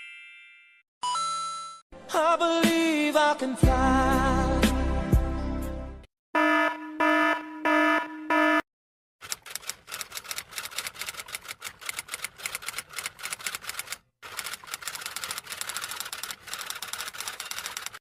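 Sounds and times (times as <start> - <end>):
electronic alarm tone pulsing: 6.4 - 8.6
typewriter keys clacking: 9.2 - 18.0.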